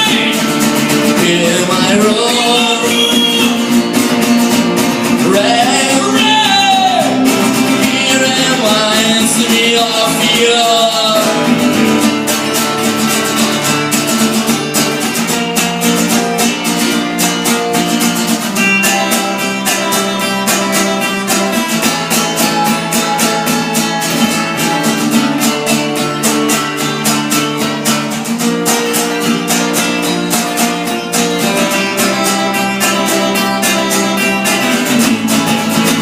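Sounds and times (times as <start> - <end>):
person singing: 0.0 - 4.0, 5.0 - 11.9
acoustic guitar strummed: 0.0 - 36.0.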